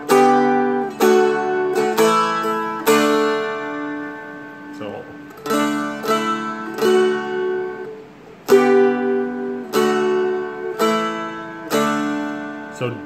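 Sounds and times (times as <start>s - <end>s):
strumstick chords strummed: 0.0s - 13.0s.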